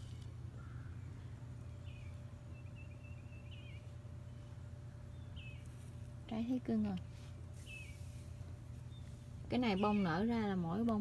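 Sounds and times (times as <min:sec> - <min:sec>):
low background rumble: 0:00.0 - 0:11.0
faint small bird chirps: 0:07.6 - 0:08.2.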